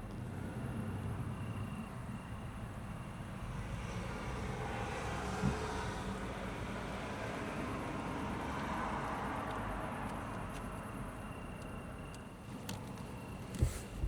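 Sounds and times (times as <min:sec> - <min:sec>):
car cabin rushing noise: 0:13.3 - 0:14.0.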